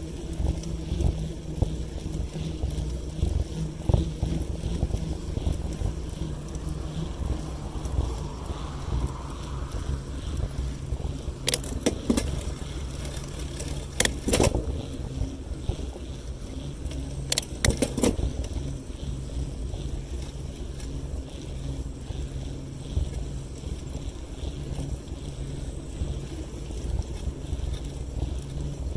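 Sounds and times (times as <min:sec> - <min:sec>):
wind rumbling on microphone: 0:00.0 - 0:28.9
sharp rattling clicks: 0:11.4 - 0:14.8, 0:16.9 - 0:18.6.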